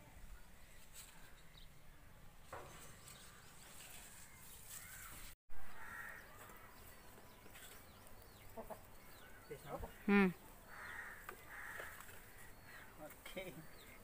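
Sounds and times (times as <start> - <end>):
birds chirping and calling: 0.3 - 14.0.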